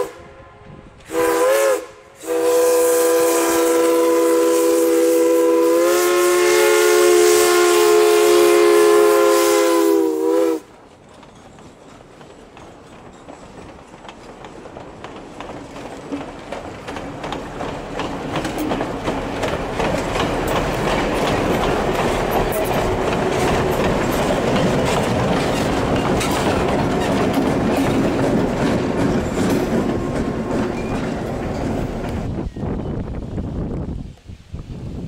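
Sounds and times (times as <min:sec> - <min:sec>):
diesel locomotive engine hum: 0:00.0 - 0:34.2
train wheels clacking over rail joints: 0:10.7 - 0:32.6.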